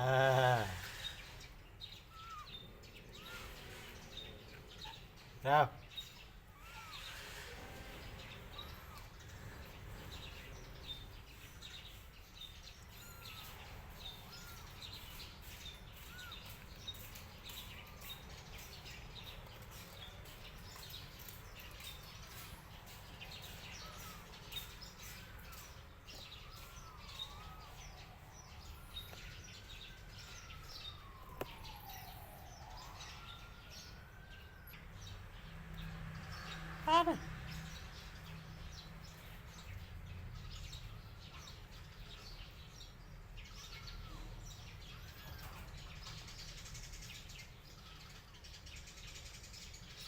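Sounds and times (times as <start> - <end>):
small birds chirping: 0.0 - 50.0
siren wailing: 25.2 - 35.3.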